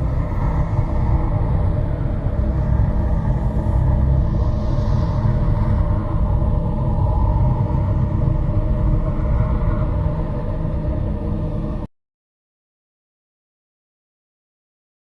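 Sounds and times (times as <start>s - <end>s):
loud low rumble: 0.0s - 11.9s.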